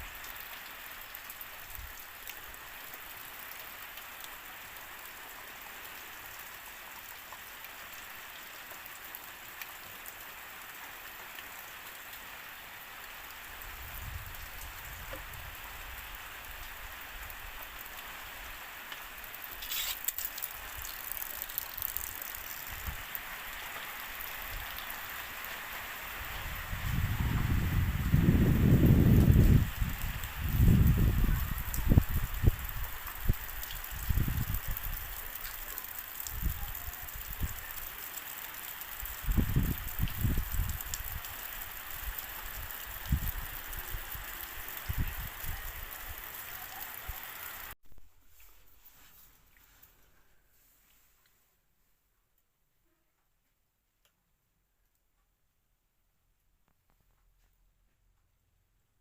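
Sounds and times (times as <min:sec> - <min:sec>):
steady rain hiss: 0:00.0 - 0:51.6
sharp drip ticks: 0:18.9 - 0:23.2.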